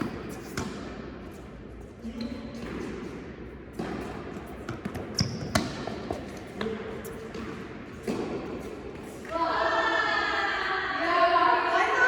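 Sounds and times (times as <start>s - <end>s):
tennis ball bouncing on court: 2.6s - 8.7s.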